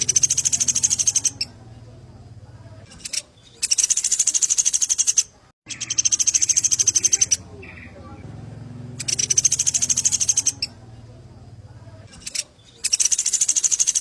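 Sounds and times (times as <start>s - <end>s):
songbird trilling: 0.0s - 1.6s, 2.9s - 8.2s, 8.9s - 10.9s, 12.1s - 14.0s.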